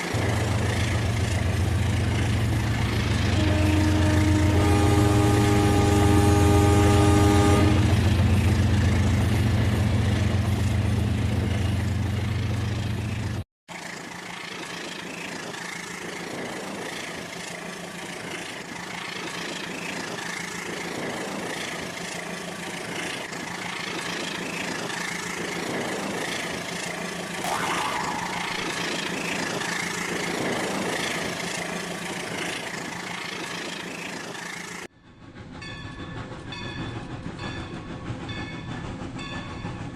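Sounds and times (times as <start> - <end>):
toy train electronic horn: 3.4 - 7.9.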